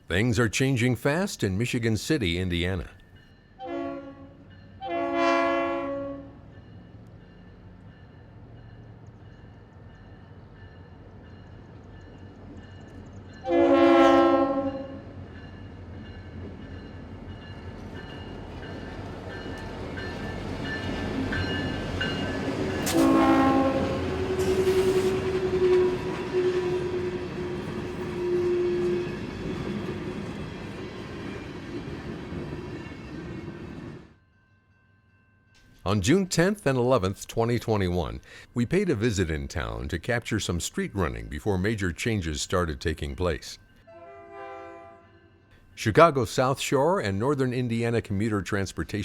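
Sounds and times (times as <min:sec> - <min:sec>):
train rumbling: 0:02.6 - 0:34.1
train horn blasts: 0:03.6 - 0:06.4, 0:13.4 - 0:15.2, 0:22.8 - 0:29.2, 0:43.9 - 0:45.4.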